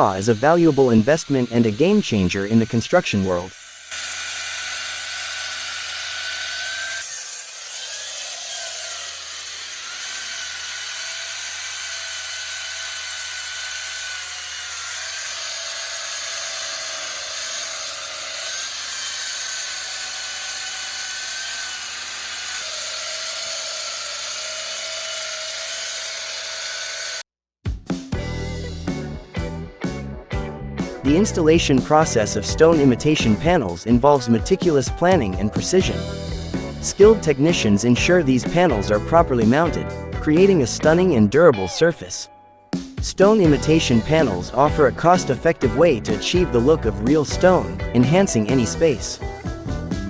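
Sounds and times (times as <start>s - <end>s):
saw whining cutting concrete: 0.0s - 27.3s, 31.2s - 33.8s, 35.8s - 41.1s, 43.2s - 49.2s.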